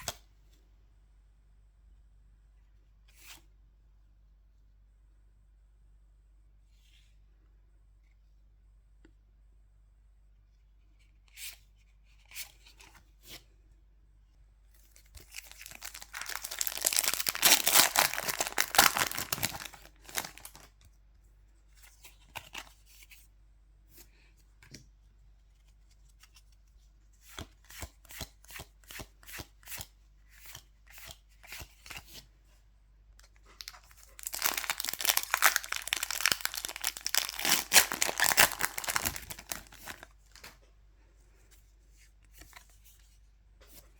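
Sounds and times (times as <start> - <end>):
foil wrappers crinkling: 15.2 - 20.7, 33.6 - 40.4.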